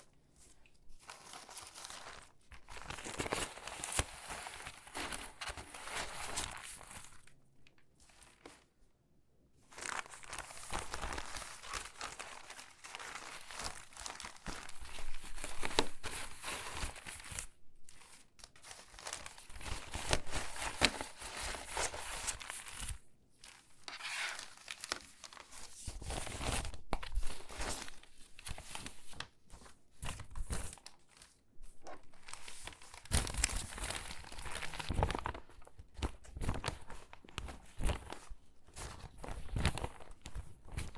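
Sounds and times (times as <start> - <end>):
magazine pages crackling: 0.0 - 7.4, 9.7 - 40.9.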